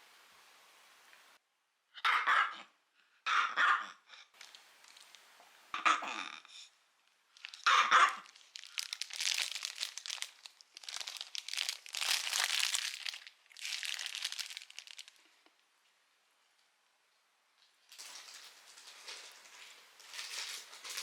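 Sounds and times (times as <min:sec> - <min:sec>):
crinkling rustling: 0:04.4 - 0:05.6, 0:07.1 - 0:15.5, 0:17.9 - 0:21.0.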